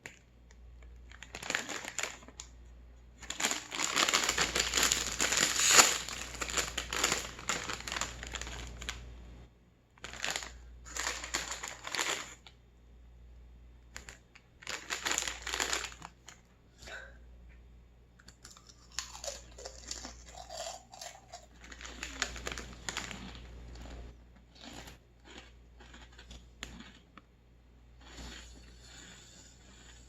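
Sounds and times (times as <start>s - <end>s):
crunchy snack being chewed: 3.3s - 9.0s, 18.2s - 27.3s, 28.0s - 30.0s.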